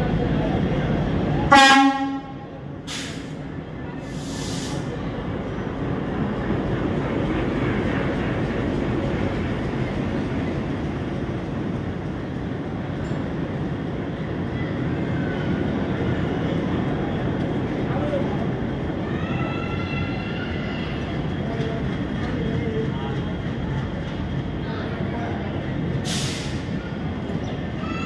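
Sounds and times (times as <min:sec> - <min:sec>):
train wheels rumbling on rails: 0:00.0 - 0:28.0
short hisses: 0:02.9 - 0:03.4, 0:04.0 - 0:04.9, 0:26.1 - 0:26.8.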